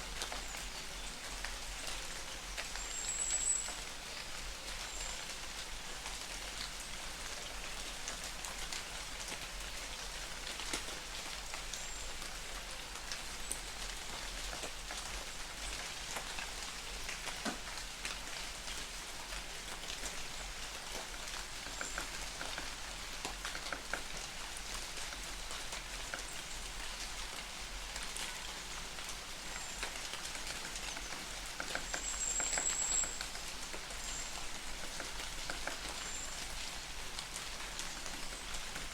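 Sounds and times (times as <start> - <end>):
rain pattering on leaves: 0.0 - 38.9.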